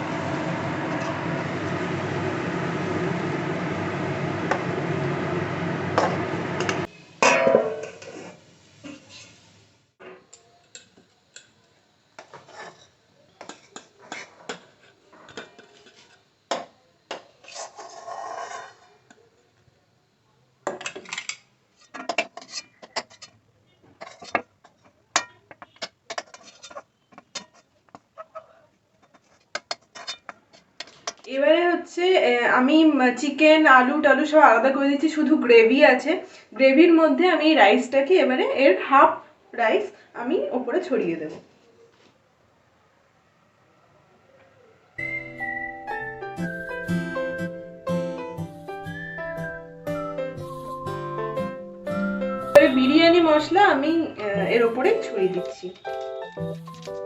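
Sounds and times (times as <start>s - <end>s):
steady loud noise: 0.0s - 7.2s.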